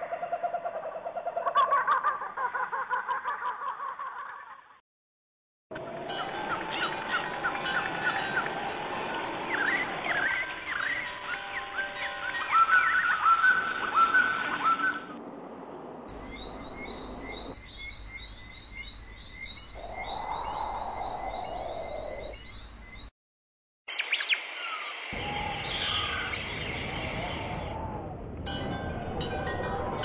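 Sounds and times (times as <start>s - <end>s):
bird calls and songs: 6.2s - 15.1s, 16.1s - 23.1s, 23.9s - 27.8s.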